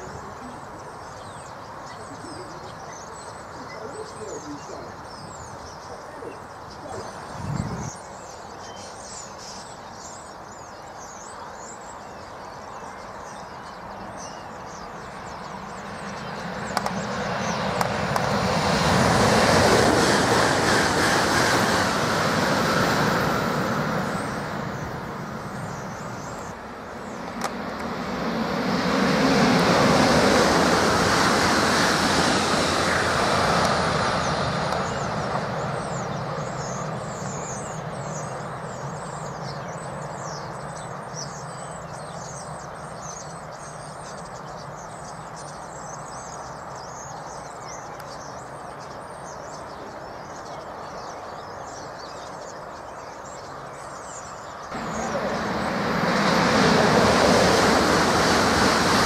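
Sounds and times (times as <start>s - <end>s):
high-speed train rushing past: 0.0s - 8.4s, 12.9s - 43.9s, 53.0s - 59.0s.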